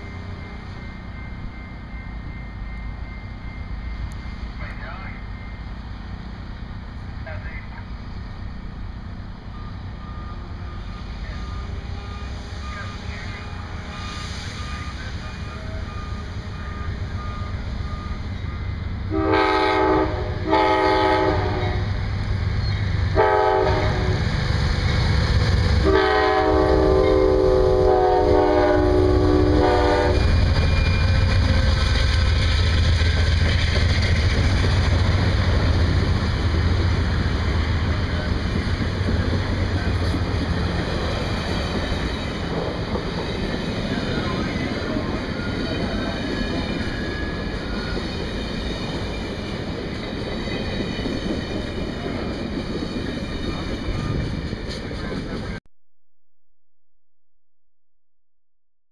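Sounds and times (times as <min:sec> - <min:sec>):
train rumbling past: 0:00.0 - 0:55.6
locomotive air horn: 0:19.1 - 0:22.0, 0:23.2 - 0:24.3, 0:25.8 - 0:30.4.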